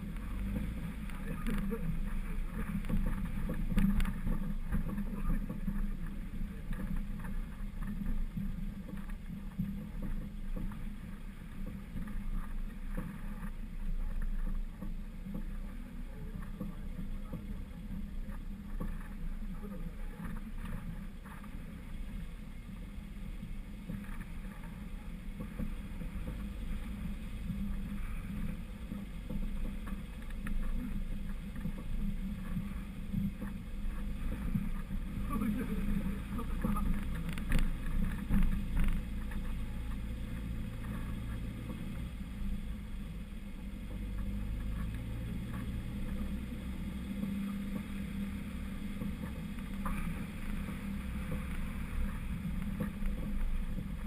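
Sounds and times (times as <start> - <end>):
engine and drivetrain drone: 0.0 - 54.0.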